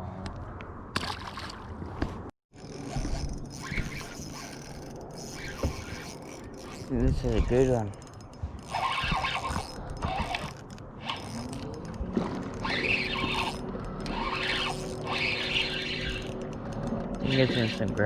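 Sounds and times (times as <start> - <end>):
fishing reel drag squealing: 2.6 - 11.7, 12.6 - 16.5, 17.2 - 18.0.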